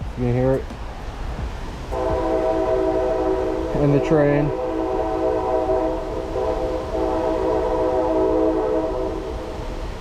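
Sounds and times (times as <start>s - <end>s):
train rumbling past: 0.0s - 10.0s
train horn chord: 1.9s - 9.7s.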